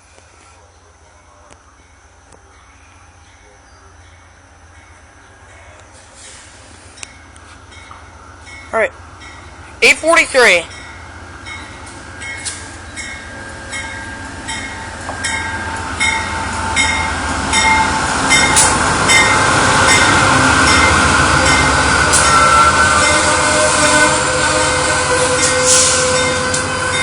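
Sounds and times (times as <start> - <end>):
diesel train rumbling: 0.0 - 27.0
bell clanging: 10.7 - 20.9.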